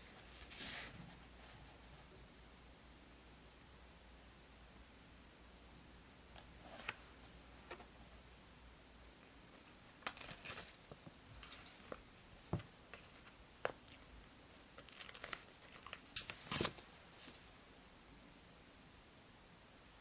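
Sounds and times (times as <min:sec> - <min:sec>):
paper crinkling: 0:10.0 - 0:12.0, 0:12.9 - 0:17.4.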